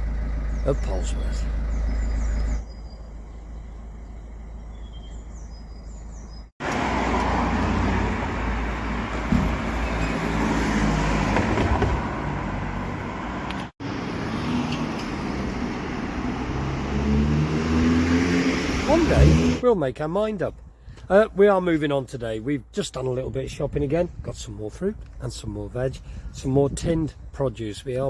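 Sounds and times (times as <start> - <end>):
road traffic rumble: 0.0 - 21.4.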